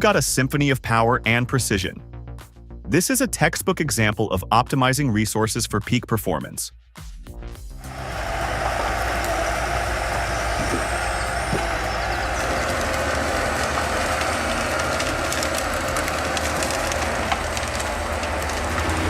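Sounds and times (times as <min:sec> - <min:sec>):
heavy machinery engine drone: 0:07.8 - 0:19.0
clicks and rattles: 0:10.3 - 0:19.0.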